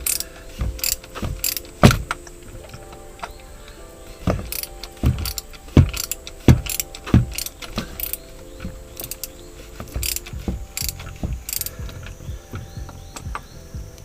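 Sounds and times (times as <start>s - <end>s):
ratchet wrench clicking: 9.9s - 12.0s.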